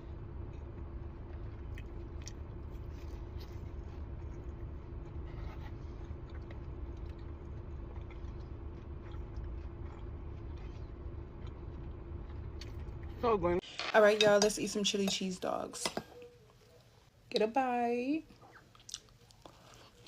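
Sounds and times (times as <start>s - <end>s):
steady low hum: 0.0s - 18.8s
chewing and biting food: 0.4s - 13.2s, 18.5s - 20.0s.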